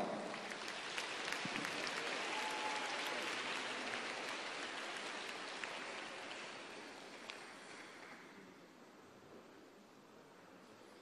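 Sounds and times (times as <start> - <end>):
crowd applauding and cheering: 0.0 - 7.0.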